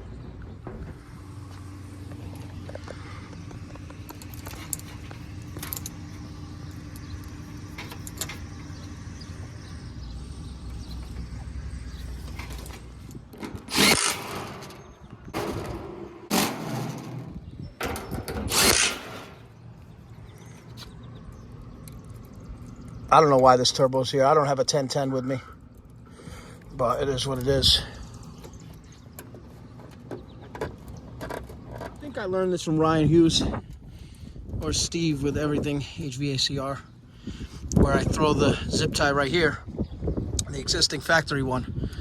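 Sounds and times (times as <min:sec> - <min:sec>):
low machinery hum: 0:00.0 - 0:42.0
power drill running: 0:13.4 - 0:15.0, 0:18.3 - 0:19.4.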